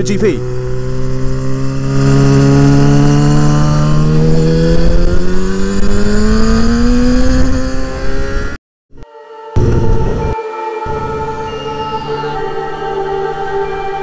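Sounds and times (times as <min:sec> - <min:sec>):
motorcycle engine accelerating: 0:00.0 - 0:08.6, 0:09.6 - 0:14.0.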